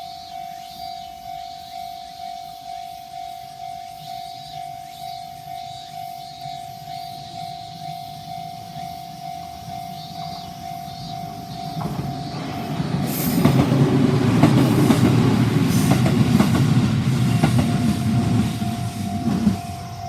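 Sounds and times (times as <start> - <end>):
level crossing warning bell: 0.0 - 20.0
train wheels rumbling: 8.6 - 20.0
wheels clacking over rail joints: 9.6 - 20.0.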